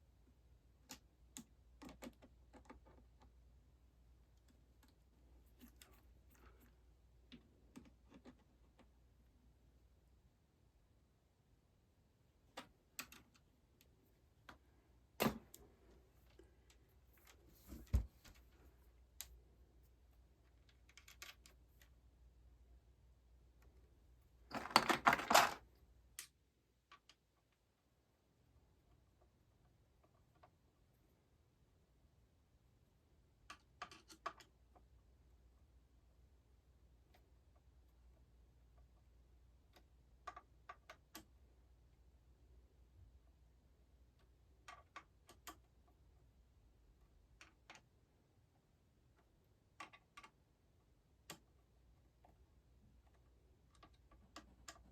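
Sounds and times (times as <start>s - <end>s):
clicks and rattles: 24.5s - 25.7s.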